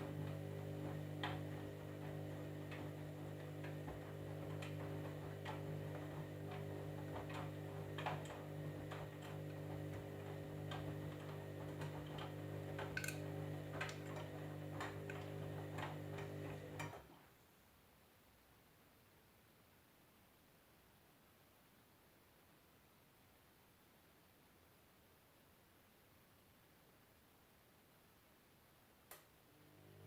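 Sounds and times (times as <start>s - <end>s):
washing machine hum: 0.0s - 17.3s, 29.5s - 30.0s.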